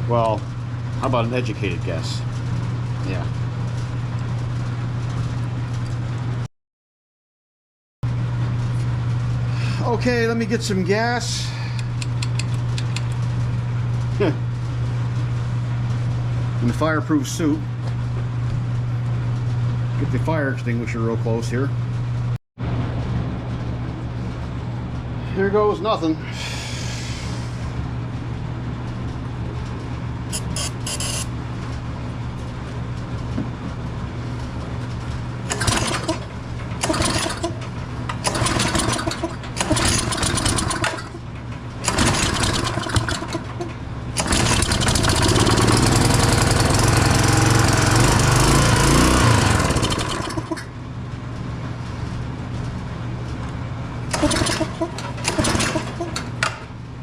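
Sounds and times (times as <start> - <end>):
small engine running unevenly: 35.4 - 50.8, 54.0 - 56.7.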